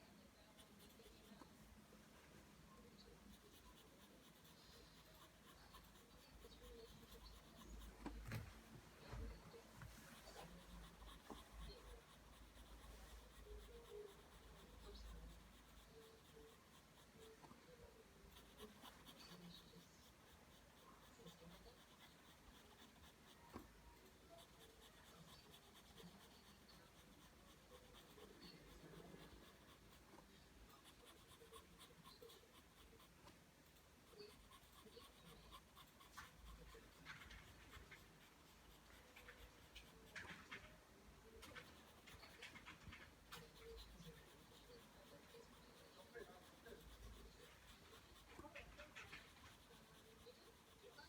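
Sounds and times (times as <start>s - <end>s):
pencil scratching on paper: 0.0s - 51.0s.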